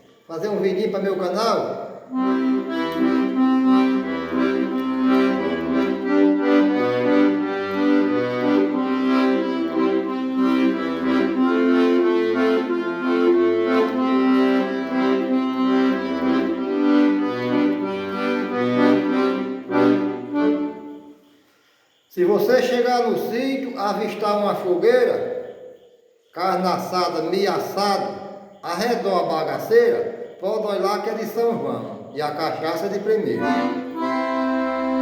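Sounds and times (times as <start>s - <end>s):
accordion playing a tune: 2.1s - 21.3s, 32.8s - 35.0s.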